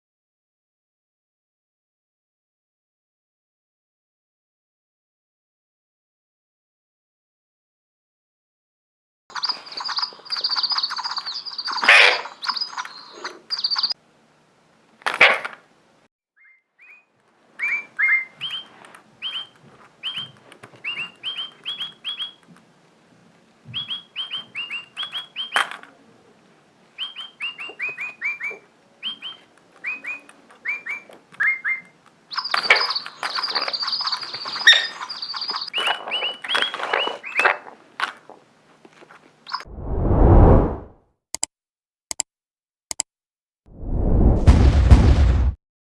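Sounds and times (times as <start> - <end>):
parrot chirping: 9.3 - 14.0, 17.6 - 22.4, 23.8 - 25.6, 27.0 - 37.4
sharp clicks: 41.3 - 41.5.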